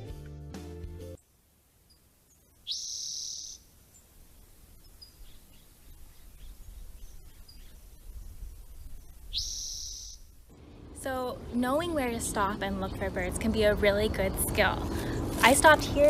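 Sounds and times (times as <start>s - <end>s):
bird singing high trills: 1.9s - 4.1s, 4.8s - 10.6s
low background rumble: 4.2s - 16.0s.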